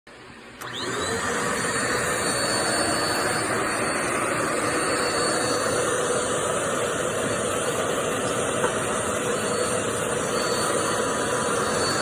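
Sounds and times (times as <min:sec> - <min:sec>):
vacuum cleaner motor running: 0:00.3 - 0:12.0
vacuum cleaner switch click: 0:00.6 - 0:01.1.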